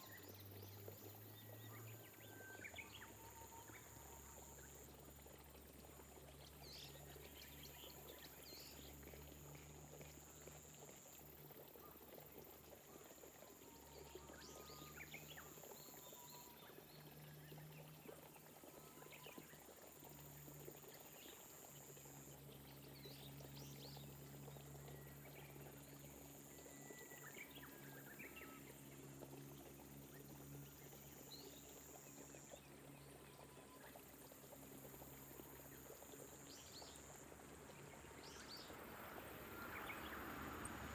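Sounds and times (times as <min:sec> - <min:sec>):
light rain falling: 0:36.4 - 0:40.9.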